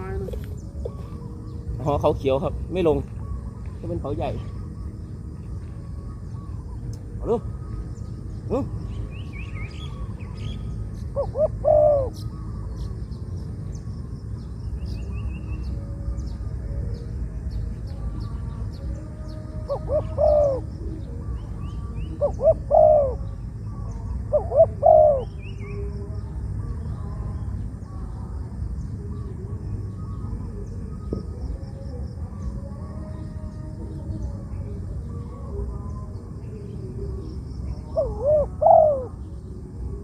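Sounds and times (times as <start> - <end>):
small birds chirping: 0.0 - 40.0
dove cooing: 6.0 - 13.0, 19.5 - 23.4, 24.1 - 26.2, 34.6 - 40.0.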